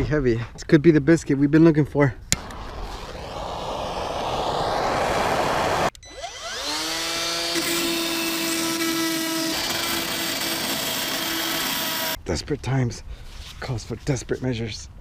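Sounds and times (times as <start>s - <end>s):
loud rushing noise: 2.4s - 6.0s
power tool whine: 2.4s - 12.2s.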